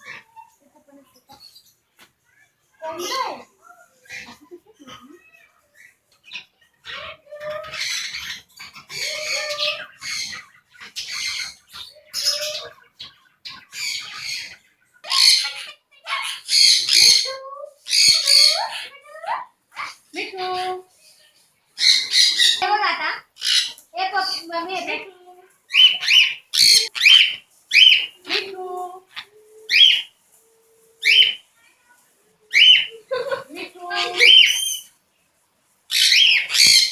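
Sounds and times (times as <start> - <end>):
bird screeching squawks: 13.7 - 17.3, 17.9 - 19.0, 21.8 - 22.7, 23.4 - 24.4, 25.7 - 28.2, 29.2 - 30.1, 31.0 - 31.4, 32.5 - 32.9, 33.9 - 34.9, 35.9 - 36.9
bird whistled shrill calls: 25.7 - 28.2, 29.7 - 30.1, 31.0 - 31.4, 35.9 - 36.9.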